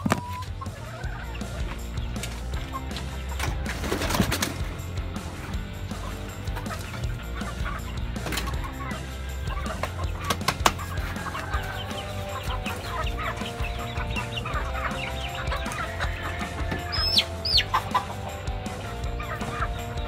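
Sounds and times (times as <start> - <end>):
hens clucking: 0.0 - 20.0
high falling bird calls: 5.3 - 20.0.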